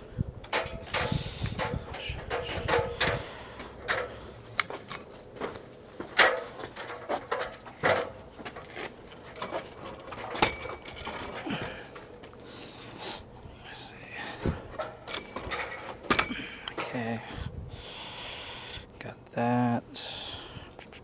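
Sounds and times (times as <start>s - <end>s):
metal tools clicking and clacking: 0.5s - 5.2s, 6.2s - 12.2s, 14.8s - 16.9s.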